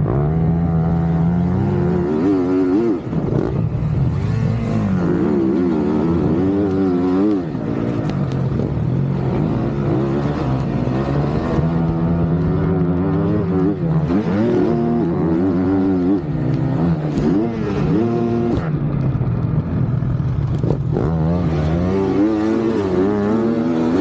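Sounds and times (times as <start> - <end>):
motocross bike engines revving: 0.0 - 24.0.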